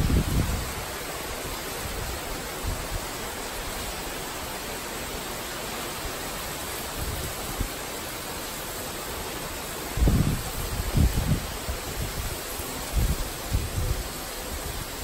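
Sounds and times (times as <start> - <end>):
wind gust on microphone: 0.0 - 4.1, 6.8 - 7.9, 9.6 - 15.0
heavy rain falling: 0.0 - 15.0.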